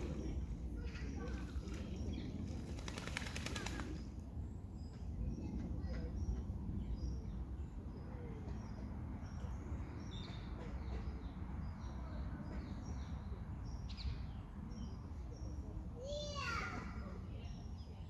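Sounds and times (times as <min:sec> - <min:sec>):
steady low rumble: 0:00.0 - 0:02.9.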